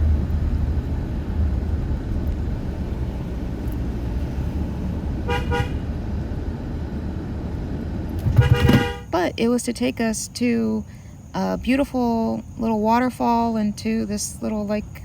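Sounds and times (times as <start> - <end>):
car interior driving rumble: 0.0 - 15.0
car horn honk: 5.2 - 5.9, 8.2 - 9.1.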